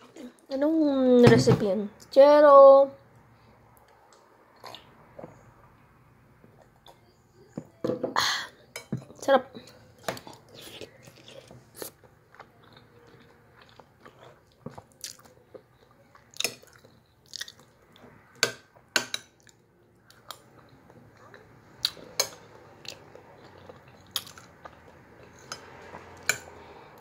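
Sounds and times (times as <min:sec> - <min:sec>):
person chewing food: 0:03.8 - 0:05.4, 0:10.0 - 0:26.7.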